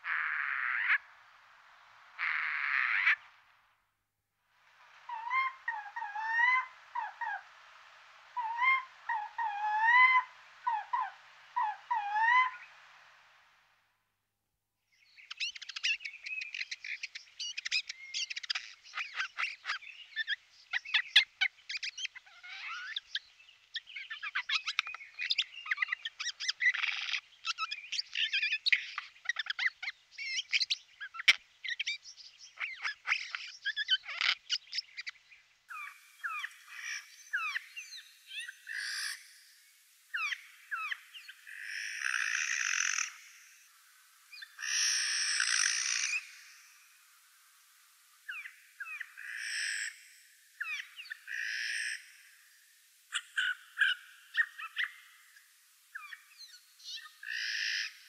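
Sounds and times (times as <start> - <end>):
birds whistling wavering notes: 35.7 - 39.5, 44.3 - 46.8.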